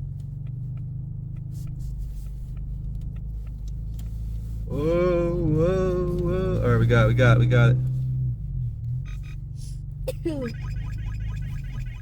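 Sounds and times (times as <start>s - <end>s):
car cabin engine drone: 0.0s - 12.0s
tyres running on snow: 4.3s - 7.9s.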